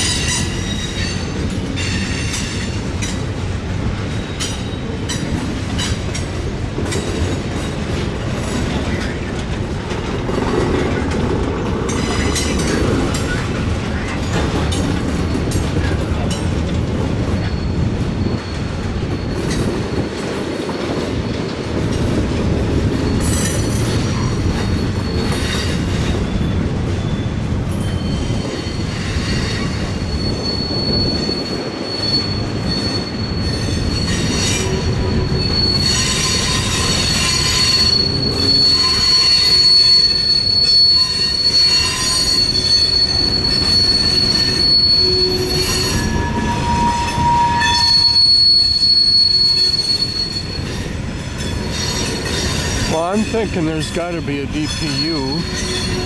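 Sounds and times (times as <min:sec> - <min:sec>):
freight train wheels rumbling: 0:00.0 - 0:56.0
high wheel squeal: 0:17.2 - 0:20.1, 0:22.8 - 0:56.0.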